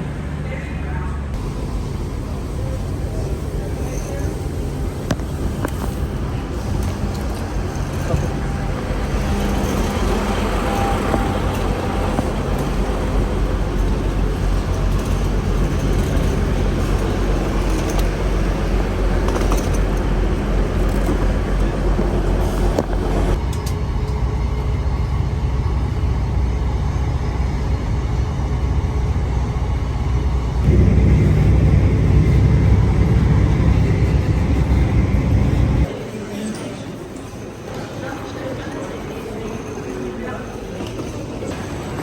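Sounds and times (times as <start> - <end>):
vehicle interior rumble: 30.6 - 35.9.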